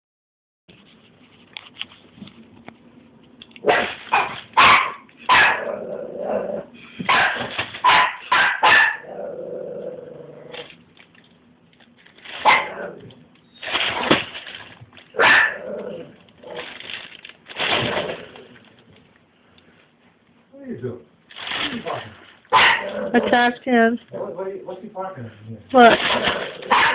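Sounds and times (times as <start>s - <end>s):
puppy yapping: 3.6s - 5.7s, 7.1s - 9.1s, 12.4s - 12.8s, 15.2s - 15.6s, 21.8s - 23.4s, 26.7s - 26.9s
puppy growling: 5.4s - 6.8s, 8.9s - 10.7s, 12.4s - 13.2s, 15.2s - 16.8s, 21.5s - 26.9s.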